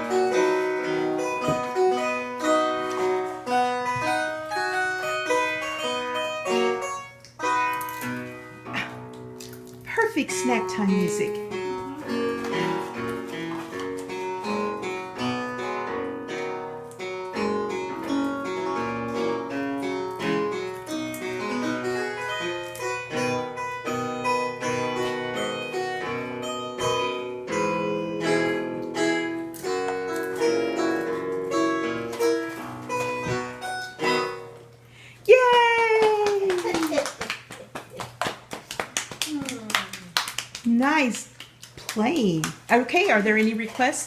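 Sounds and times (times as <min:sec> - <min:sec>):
piano playing: 0:00.0 - 0:35.1.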